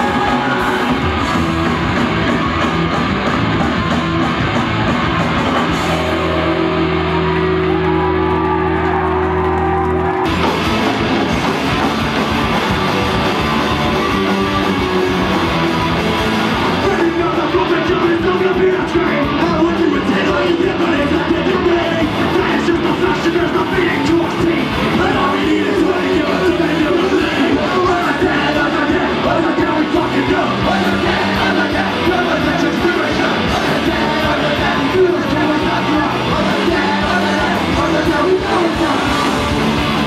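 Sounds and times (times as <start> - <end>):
punk rock band playing: 0.0 - 40.0
person singing: 16.7 - 40.0.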